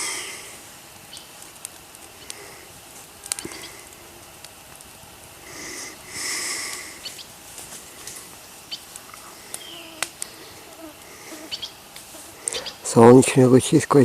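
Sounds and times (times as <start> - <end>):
breathy puffs of air: 0.0 - 0.8, 2.1 - 4.2, 5.4 - 8.4, 9.2 - 12.8.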